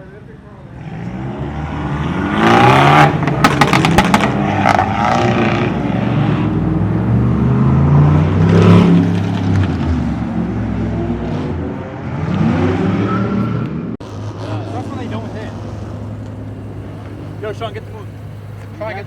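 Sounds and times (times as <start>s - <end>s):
car engine revving: 0.7s - 19.0s
sharp exhaust pops: 3.2s - 5.6s.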